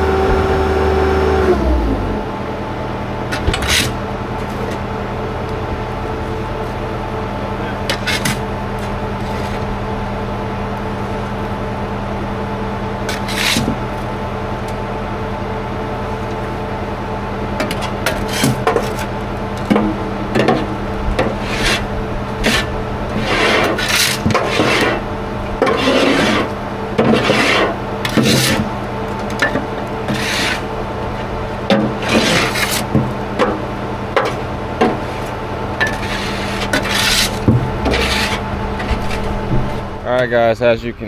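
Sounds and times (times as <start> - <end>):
machine engine hum: 0.0 - 41.0
hand tool scraping through soil: 7.9 - 9.6, 13.1 - 13.9, 21.4 - 25.0, 25.6 - 28.9, 30.1 - 30.7, 32.0 - 33.0, 35.1 - 39.4.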